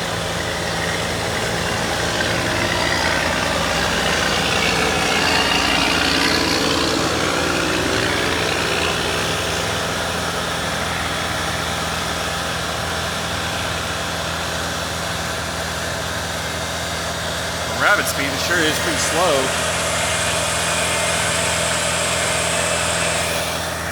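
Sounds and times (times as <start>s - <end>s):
boom lift engine running: 0.0s - 23.9s.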